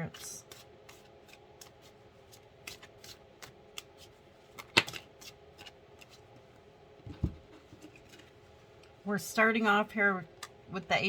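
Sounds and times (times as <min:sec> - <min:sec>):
cards snapping and tapping: 0:04.6 - 0:06.2.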